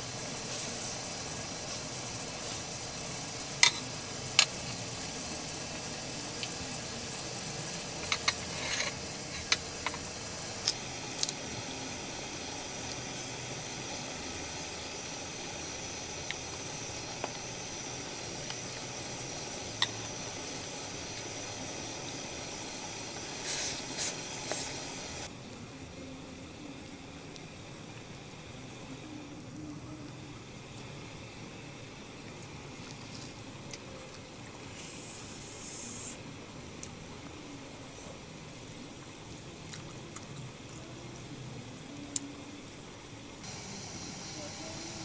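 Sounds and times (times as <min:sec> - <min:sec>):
food sizzling in a pan: 0:00.0 - 0:25.3, 0:34.7 - 0:36.2, 0:43.4 - 0:45.0
sharp pops of frying: 0:03.5 - 0:05.1.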